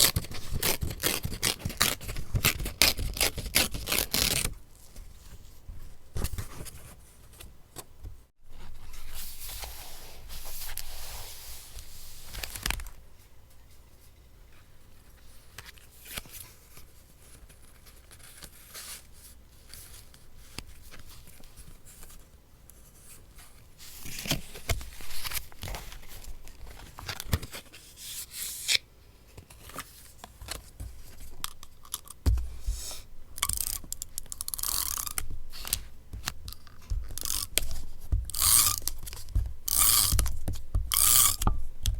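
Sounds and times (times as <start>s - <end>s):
paper tearing: 0.0s - 4.5s
scissors cutting paper: 0.0s - 4.5s, 33.4s - 40.3s.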